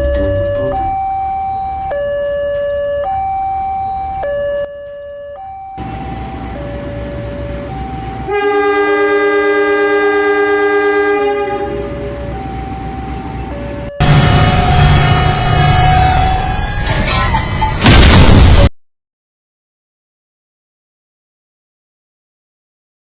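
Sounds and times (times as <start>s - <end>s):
two-tone siren: 0.0s - 17.8s
multi-note train horn: 8.3s - 12.3s, 14.0s - 16.9s.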